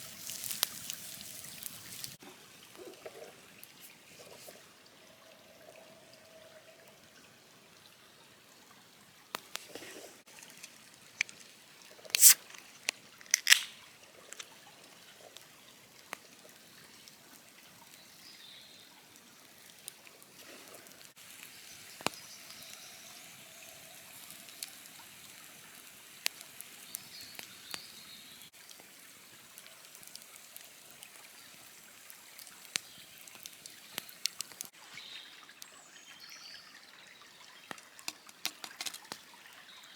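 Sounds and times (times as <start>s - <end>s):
fire pops: 0.0s - 2.2s, 9.3s - 14.5s, 37.7s - 39.3s
campfire crackling: 0.0s - 4.5s, 9.3s - 18.2s, 19.0s - 34.8s, 37.7s - 39.5s.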